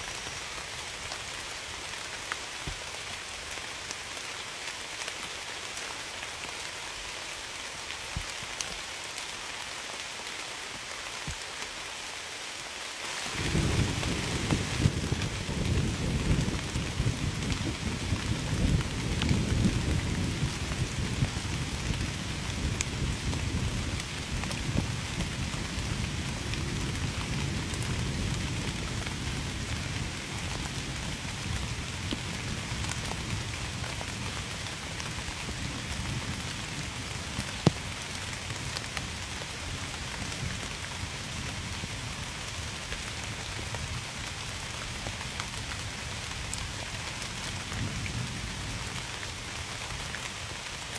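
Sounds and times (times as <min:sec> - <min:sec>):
heavy rain falling: 0:00.0 - 0:50.9
low thunder rumble: 0:13.4 - 0:34.2.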